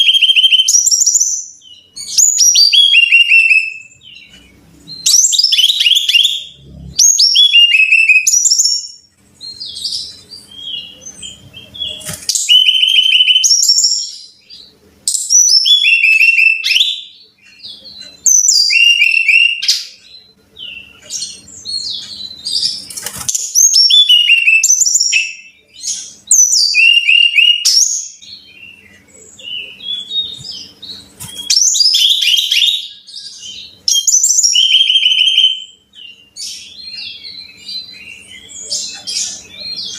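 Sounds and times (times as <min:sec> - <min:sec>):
bird whistling song: 0:00.0 - 0:39.9.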